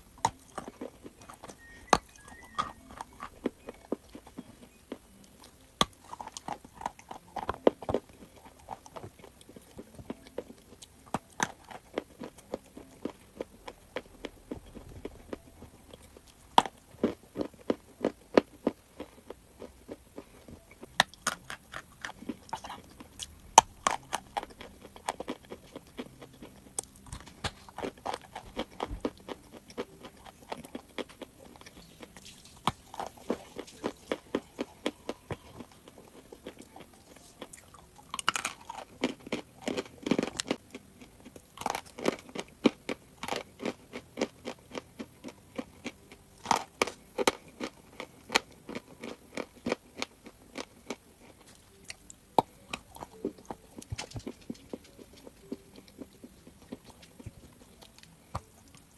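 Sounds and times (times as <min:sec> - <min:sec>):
chalk being chewed: 0:46.6 - 0:58.9.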